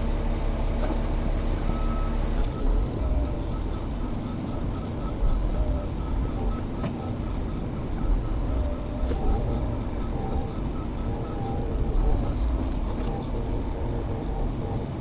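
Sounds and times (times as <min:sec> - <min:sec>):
diesel engine rumbling: 0:00.0 - 0:14.2
hazard flasher ticking: 0:02.8 - 0:04.9.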